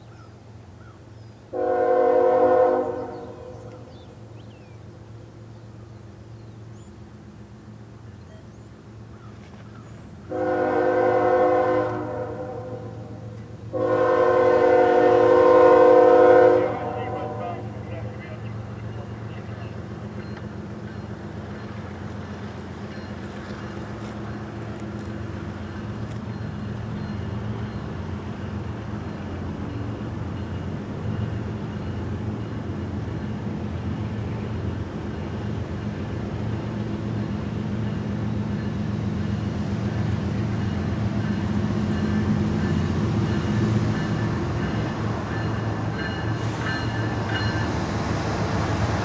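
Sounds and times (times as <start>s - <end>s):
diesel locomotive engine drone: 0.0s - 49.0s
train rumble: 0.2s - 49.0s
locomotive air horn: 1.5s - 3.9s, 10.3s - 17.9s.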